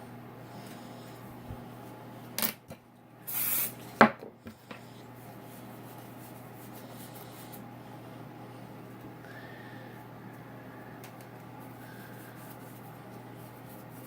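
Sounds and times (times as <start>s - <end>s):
aerosol can spraying: 3.3s - 3.8s.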